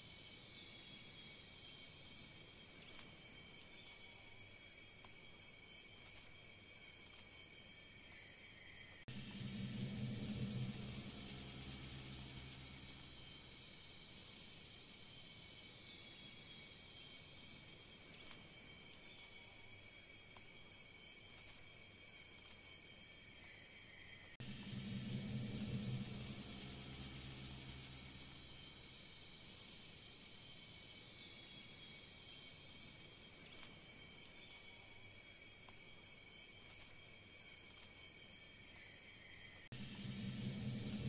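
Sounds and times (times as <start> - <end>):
crickets chirping: 0.0 - 41.0
buzzing trill with low hum: 9.1 - 14.5, 24.4 - 29.8, 39.7 - 41.0.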